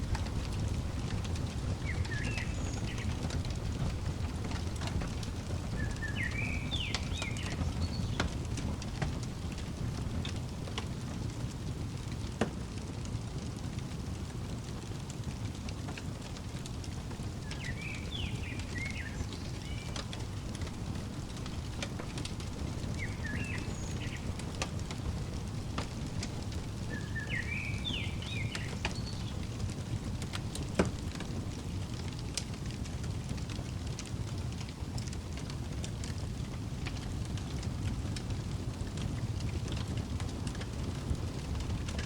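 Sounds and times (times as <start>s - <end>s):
wood fire crackling in fireplace: 0.0s - 42.0s
songbird chirping: 1.2s - 10.5s, 16.8s - 31.1s.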